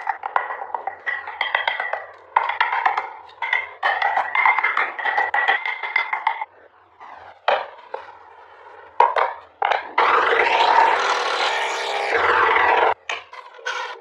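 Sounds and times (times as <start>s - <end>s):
scraping on wood: 7.5s - 14.0s.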